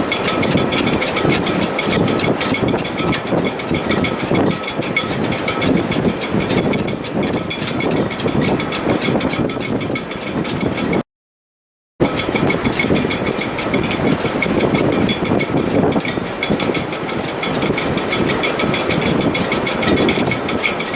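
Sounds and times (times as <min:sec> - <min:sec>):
wind rushing in rigging: 0:00.0 - 0:11.0, 0:12.0 - 0:20.9.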